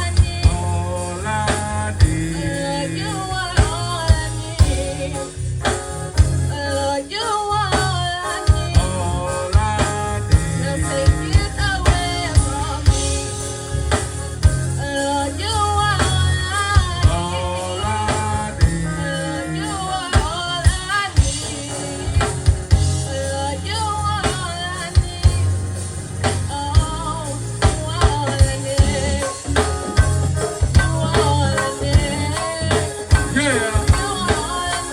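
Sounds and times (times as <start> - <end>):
drum kit hits: 0.0 - 34.9
gospel band playing: 0.0 - 34.9
sliding melodic line: 0.0 - 34.9.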